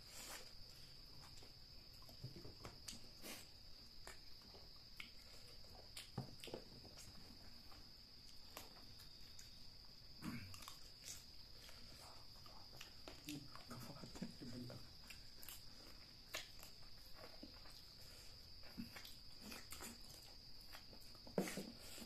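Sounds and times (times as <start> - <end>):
insect drone: 0.0 - 22.0
chewing and mouth sounds: 2.0 - 7.2, 10.3 - 22.0.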